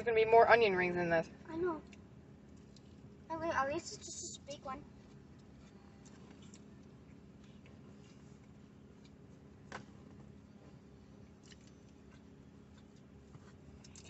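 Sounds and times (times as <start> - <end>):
low steady hum: 0.0 - 14.0
chewing fried onion ring: 4.9 - 9.6, 10.2 - 14.0.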